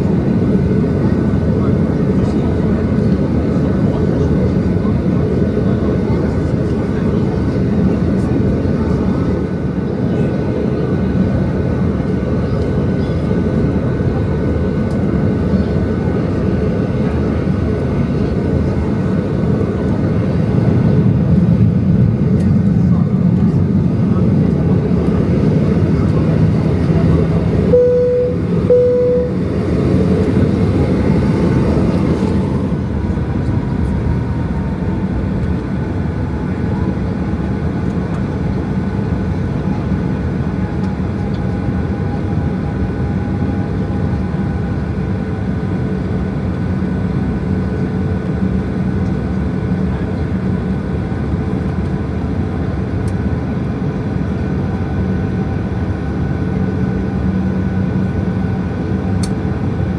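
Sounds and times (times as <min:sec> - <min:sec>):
jet engine rumble in cabin: 0:00.0 - 0:59.9
cabin chime tones: 0:27.8 - 0:29.4.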